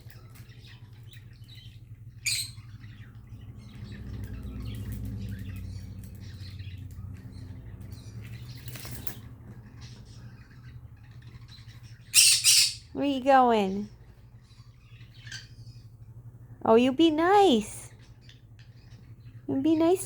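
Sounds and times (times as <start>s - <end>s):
wings fluttering: 0.0s - 12.1s
steady low hum: 0.0s - 20.0s.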